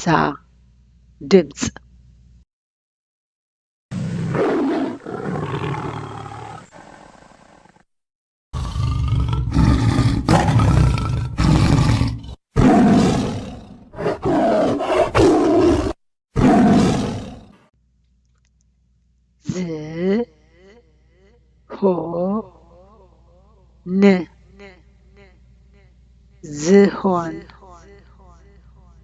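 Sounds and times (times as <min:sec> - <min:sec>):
lion roaring: 0:03.9 - 0:07.8, 0:08.6 - 0:17.6.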